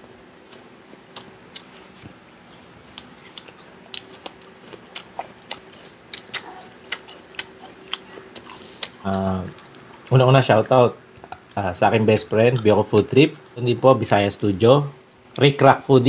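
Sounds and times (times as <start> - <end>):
chewing with mouth clicks: 0.4 - 10.2, 12.2 - 13.7.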